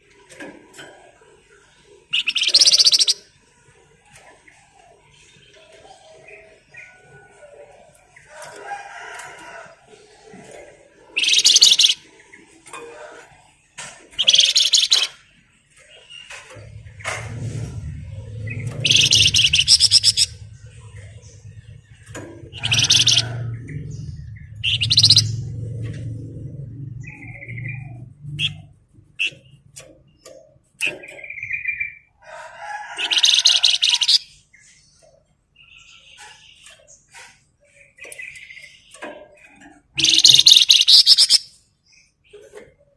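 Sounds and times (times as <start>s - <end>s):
songbird singing: 1.6s - 42.9s
bird rattling trills: 2.2s - 3.2s, 11.2s - 12.0s, 14.2s - 15.2s, 18.5s - 21.1s, 22.0s - 23.6s, 24.2s - 25.8s, 39.9s - 41.5s
songbird chirps and whistles: 40.0s - 41.5s.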